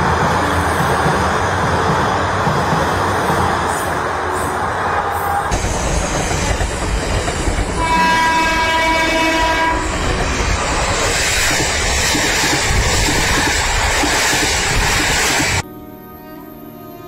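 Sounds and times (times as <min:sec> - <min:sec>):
train rushing past: 0:00.0 - 0:15.6
wheels clacking over rail joints: 0:05.5 - 0:15.6
train horn blast: 0:07.8 - 0:10.0.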